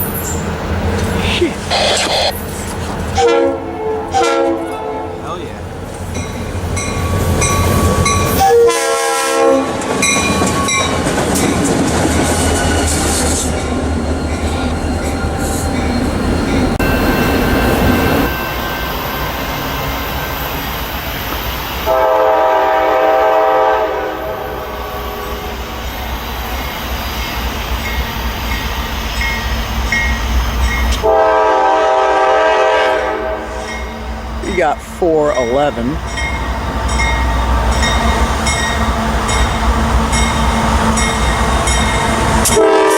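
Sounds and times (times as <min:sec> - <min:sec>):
freight train rumbling past: 0:00.0 - 0:42.9
locomotive air horn: 0:03.2 - 0:05.2, 0:08.4 - 0:09.8, 0:21.9 - 0:25.6, 0:31.0 - 0:33.9, 0:42.4 - 0:42.9.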